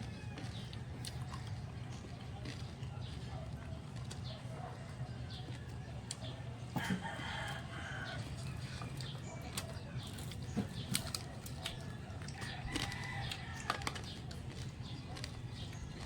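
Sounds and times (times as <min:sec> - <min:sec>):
chickens clucking: 0:00.0 - 0:16.0
crunching and chewing food: 0:00.0 - 0:16.0.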